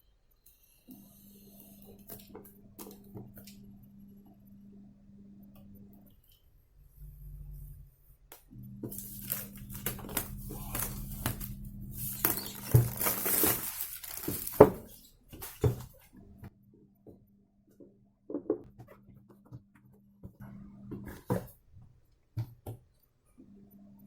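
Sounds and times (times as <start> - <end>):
low steady hum: 0.0 - 17.8
packaging crinkling: 8.9 - 15.8.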